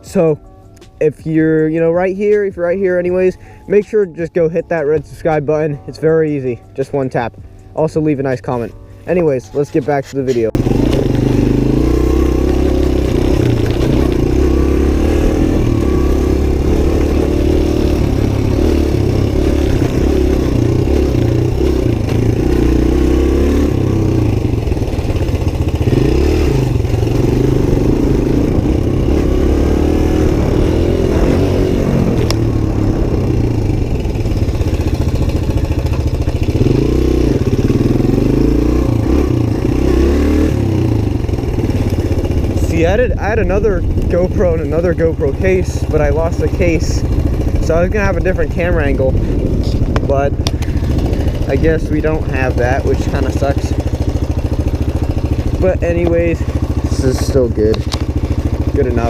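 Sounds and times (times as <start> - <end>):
motorcycle engine revving: 10.0 - 59.0.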